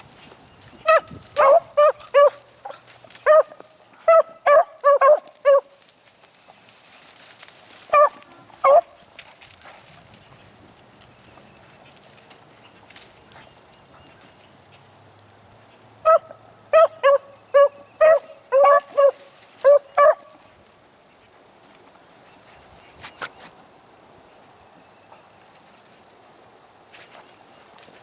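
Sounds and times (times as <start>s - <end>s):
dogs barking: 0.8s - 5.7s, 7.9s - 9.0s, 16.0s - 20.4s.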